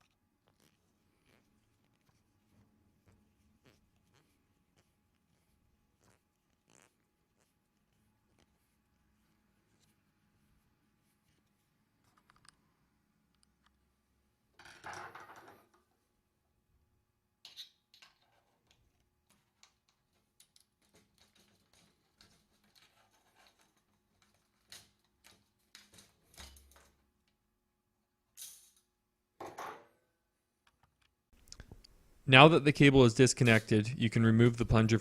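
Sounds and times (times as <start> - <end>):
small handling clicks and rustles: 11.1 - 13.9, 17.4 - 27.4.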